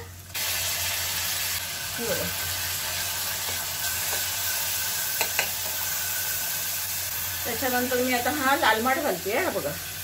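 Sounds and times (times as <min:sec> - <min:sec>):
tomato sizzling in hot oil: 0:00.0 - 0:10.0.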